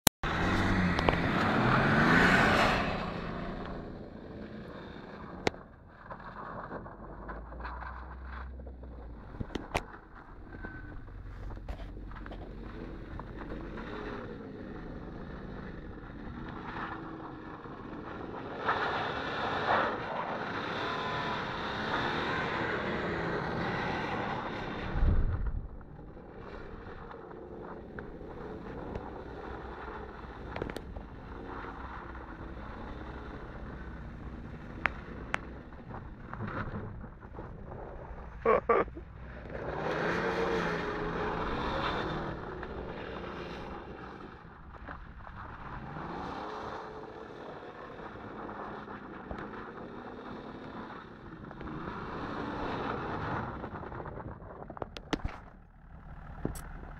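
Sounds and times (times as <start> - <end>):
car engine revving: 0.2 - 56.9
wind buffeting microphone: 24.8 - 26.1.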